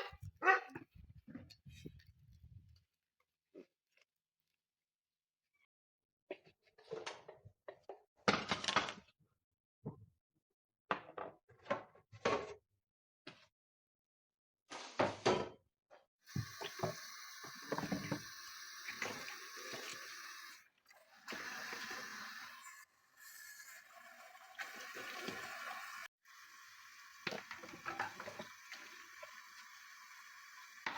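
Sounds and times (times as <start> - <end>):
steady hiss: 16.3 - 30.9.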